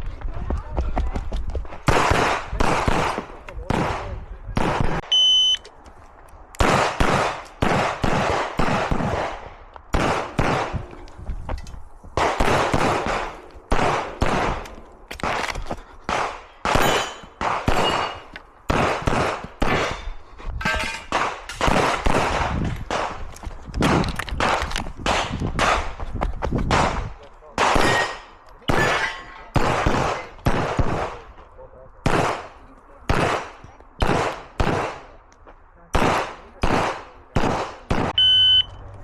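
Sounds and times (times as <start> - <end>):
pistol firing rapidly: 1.9 - 5.1, 6.6 - 10.9, 12.2 - 15.4, 16.1 - 20.1, 21.1 - 23.2, 23.8 - 26.0, 26.7 - 31.3, 32.0 - 35.2, 35.9 - 38.2.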